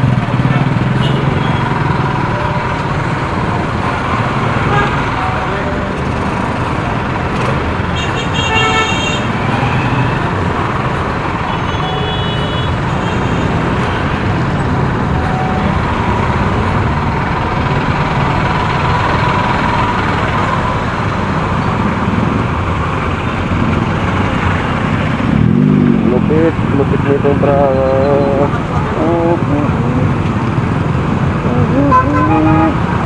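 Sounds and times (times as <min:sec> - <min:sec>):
motorcycle engine: 0:00.0 - 0:11.5, 0:12.8 - 0:33.0
wind and road noise: 0:00.0 - 0:33.0.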